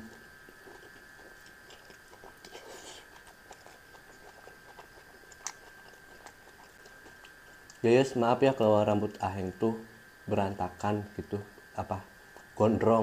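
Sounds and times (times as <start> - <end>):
person chewing softly: 0.0 - 8.1, 8.9 - 9.5, 11.2 - 12.6.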